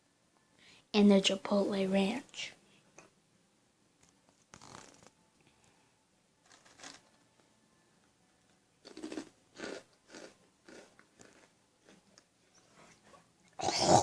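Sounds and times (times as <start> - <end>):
crunchy snack chewing: 6.4 - 7.1, 8.8 - 12.0.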